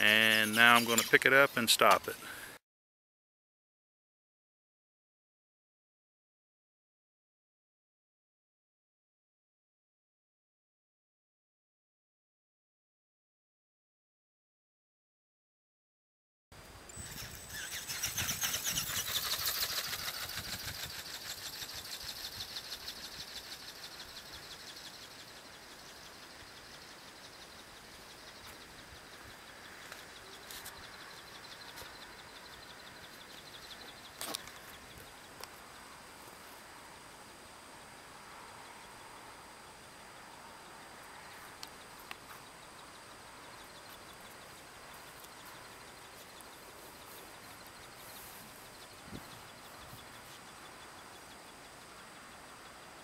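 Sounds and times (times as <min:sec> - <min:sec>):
faint outdoor background: 0:00.0 - 0:02.6, 0:16.5 - 0:53.0
ornithopter wings flapping: 0:17.1 - 0:22.8.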